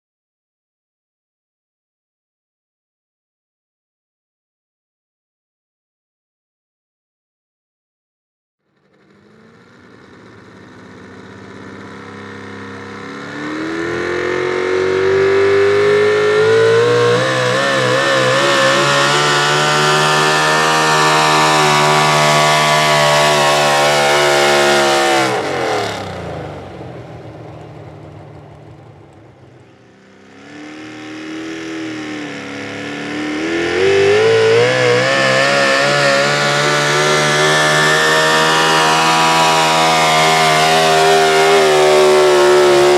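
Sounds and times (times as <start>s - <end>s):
truck engine screaming at high revs: 8.8s - 42.9s.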